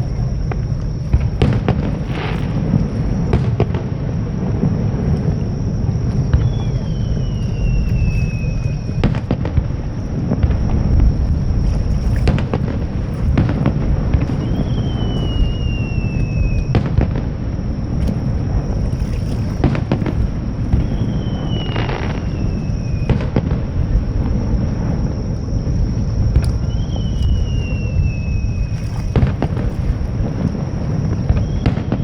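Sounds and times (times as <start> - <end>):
fireworks rumble of booms: 0.0 - 32.0
sharp firework bangs: 0.5 - 4.8, 8.9 - 11.6, 12.2 - 17.5, 19.6 - 24.5, 29.1 - 32.0
whistling firework shell: 1.1 - 17.4, 18.1 - 32.0.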